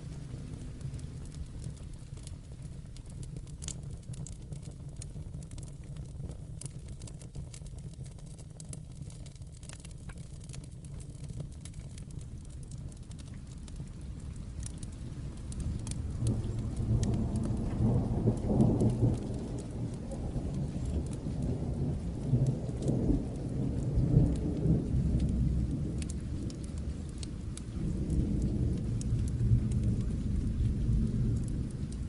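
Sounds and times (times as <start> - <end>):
fireplace crackling: 0.0 - 32.0
steady rain: 0.0 - 32.0
distant thunder rumbling: 15.1 - 32.0.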